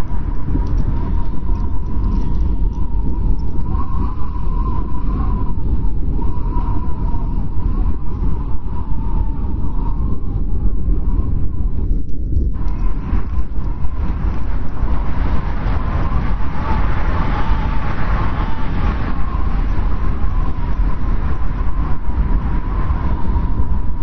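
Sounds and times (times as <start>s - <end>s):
strong wind rumbling: 0.0s - 24.0s
wind whistling: 0.0s - 24.0s.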